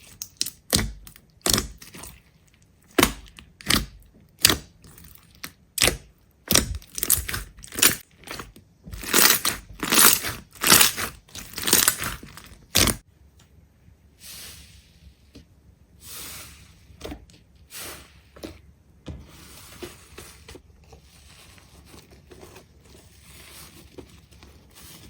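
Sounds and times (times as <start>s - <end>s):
crisp crunching strokes: 6.5s - 13.0s.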